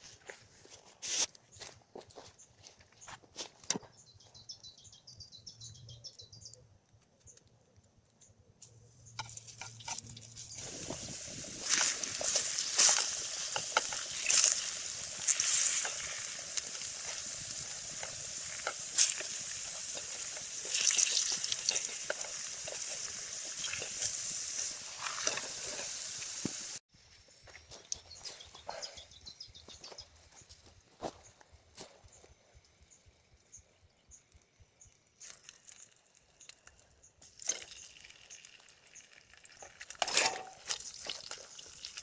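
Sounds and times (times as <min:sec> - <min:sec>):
campfire sizzling and popping: 0:08.6 - 0:28.3, 0:32.0 - 0:42.0.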